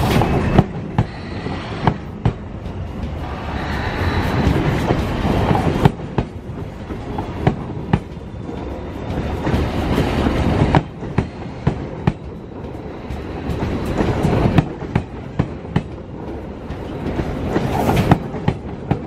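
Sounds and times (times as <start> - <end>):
train wheels rumbling on rails: 0.0 - 19.0
wheels clicking over rail joints: 4.8 - 19.0.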